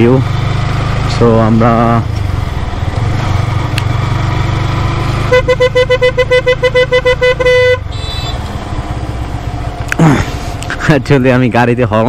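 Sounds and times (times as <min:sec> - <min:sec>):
vehicle engine running: 0:00.0 - 0:12.0
vehicle horn tooting: 0:05.3 - 0:08.5.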